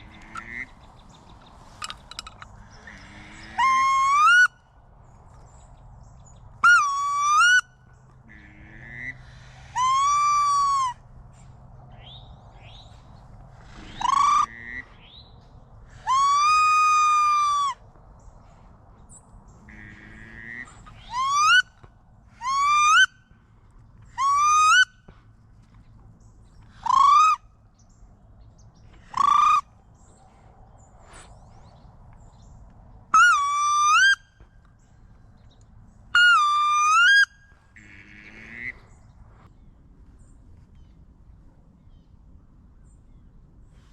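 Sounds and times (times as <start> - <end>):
duck whistled squeals: 16.0 - 17.8, 21.0 - 21.7.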